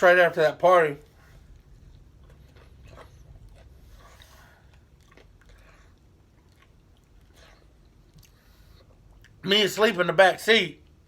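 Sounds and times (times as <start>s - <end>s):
chewing chicken wings: 1.9s - 9.4s.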